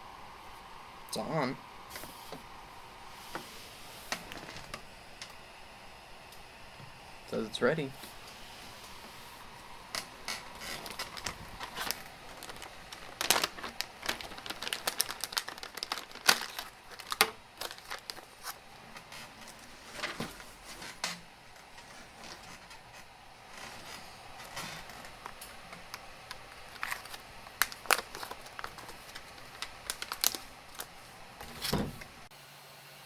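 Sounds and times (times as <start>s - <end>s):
crinkling handling noises: 7.8s - 32.2s.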